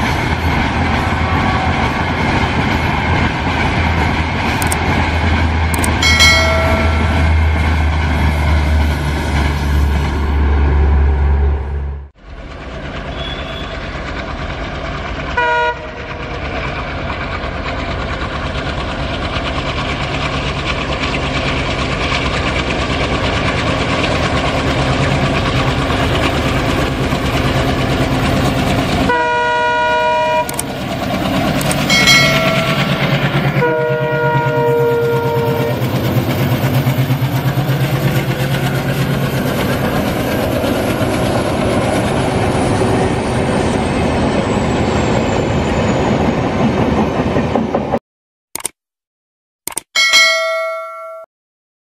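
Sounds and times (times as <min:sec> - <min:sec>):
train running: 0:00.0 - 0:48.0, 0:49.7 - 0:51.3
train horn: 0:13.1 - 0:13.8, 0:15.4 - 0:16.2, 0:29.1 - 0:30.6, 0:33.6 - 0:35.9.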